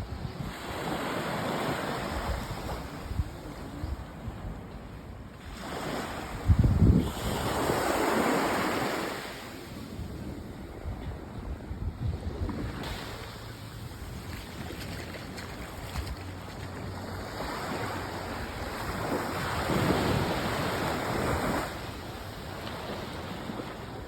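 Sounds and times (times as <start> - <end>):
rough sea waves breaking: 0.0 - 24.0
wind gust buffeting microphone: 6.3 - 8.0.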